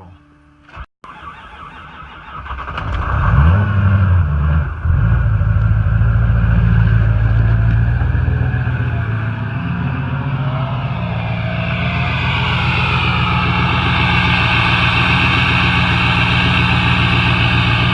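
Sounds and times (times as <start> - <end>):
diesel engine starting and idling: 0.7 - 17.9.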